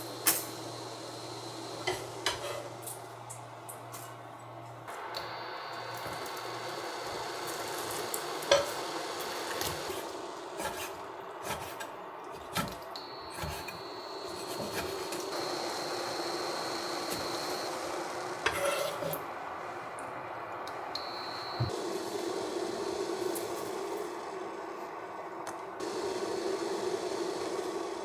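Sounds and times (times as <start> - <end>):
utensil scraping cookware: 1.8 - 3.0, 8.5 - 8.8, 9.5 - 15.3, 18.4 - 19.3
faint high whine: 4.8 - 10.5, 12.6 - 28.0.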